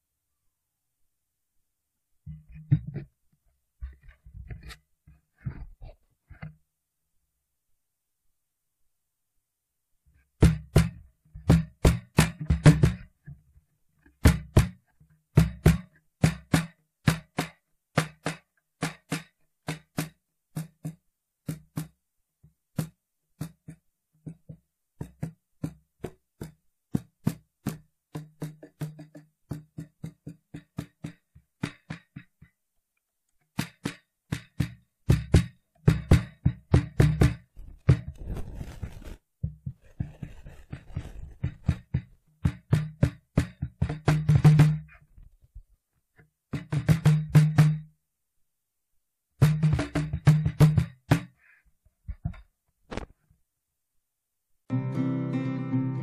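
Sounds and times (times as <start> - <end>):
cajon played by hand: 10.4 - 13.1, 14.2 - 22.0, 22.8 - 32.5, 33.6 - 45.0, 46.6 - 47.9, 49.4 - 51.4
hissy rubbing on cajon: 37.6 - 41.8.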